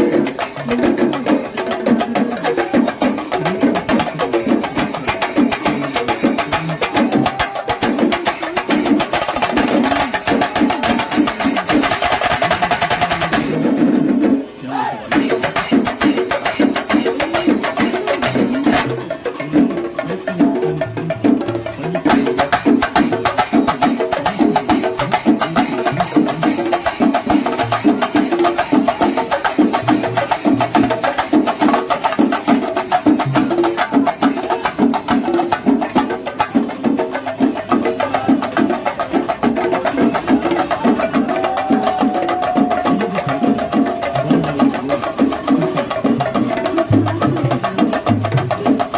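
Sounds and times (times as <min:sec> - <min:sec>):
fast dense drumming: 0:00.0 - 0:14.4
drums beaten rapidly with sticks: 0:00.0 - 0:48.9.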